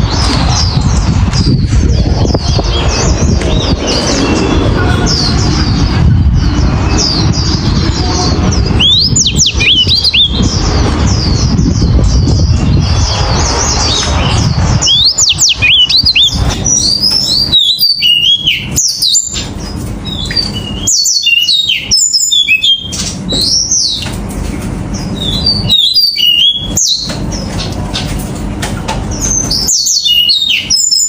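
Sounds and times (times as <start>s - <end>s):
low rumble: 0.0s - 17.6s
finch singing high twittering: 0.0s - 24.2s, 24.9s - 28.2s, 29.1s - 31.0s.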